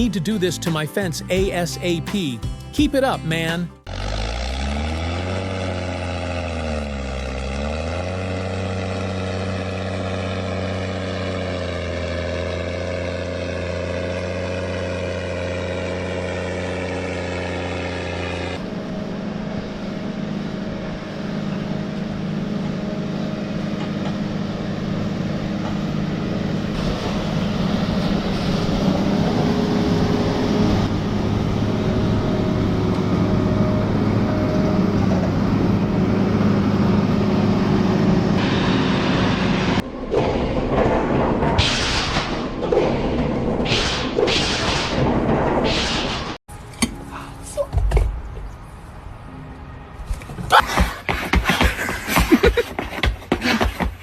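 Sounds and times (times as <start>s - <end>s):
rough noisy engine: 0.0s - 44.2s
engine running steadily: 3.8s - 40.0s.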